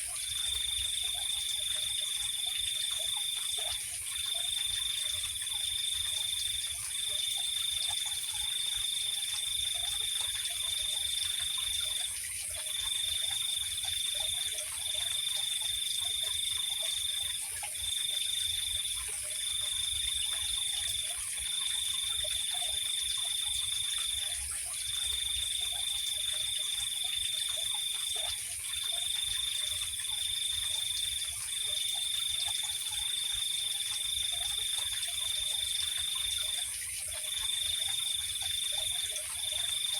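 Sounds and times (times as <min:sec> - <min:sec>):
continuous insect hiss: 0:00.0 - 0:39.9
cricket trilling: 0:00.0 - 0:39.9.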